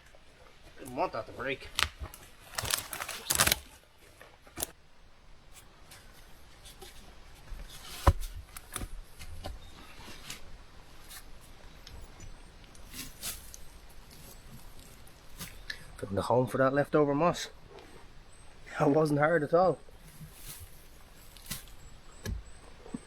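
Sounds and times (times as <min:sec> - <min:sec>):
moss and twigs rustling: 0:01.4 - 0:04.8.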